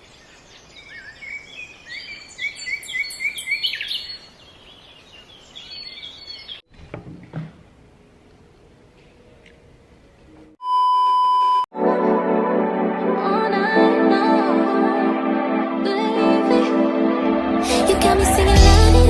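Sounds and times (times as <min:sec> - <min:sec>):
birds singing: 0:00.0 - 0:06.6
soft knocks: 0:06.8 - 0:07.7.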